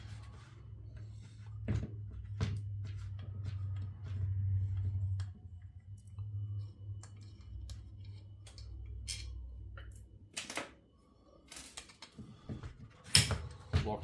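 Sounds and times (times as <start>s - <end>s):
low hum: 0.0s - 11.5s
metal parts and tools clicking: 7.0s - 10.6s.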